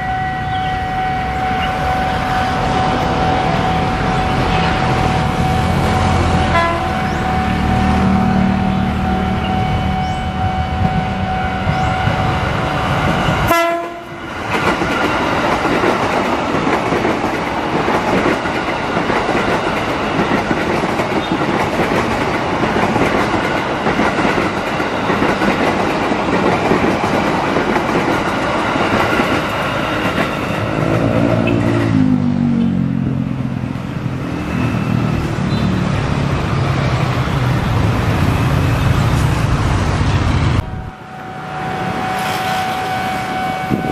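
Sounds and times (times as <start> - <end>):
horn-like tone: 0.0 - 12.4, 13.4 - 14.2, 40.6 - 43.9
train wheels clattering on rails: 11.7 - 32.7.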